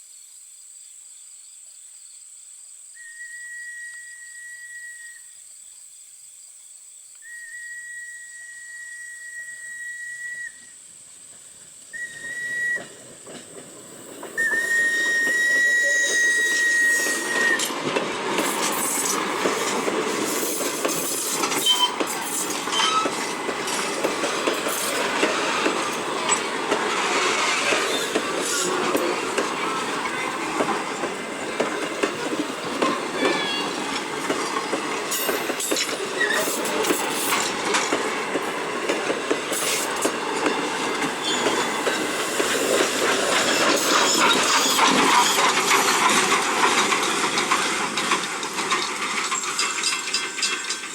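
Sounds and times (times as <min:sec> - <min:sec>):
crickets chirping: 0:00.0 - 0:46.2
steam locomotive whistle: 0:03.0 - 0:05.4, 0:07.2 - 0:10.8, 0:11.9 - 0:13.0, 0:14.4 - 0:17.8
train passing with clattering wheels: 0:07.8 - 0:50.9.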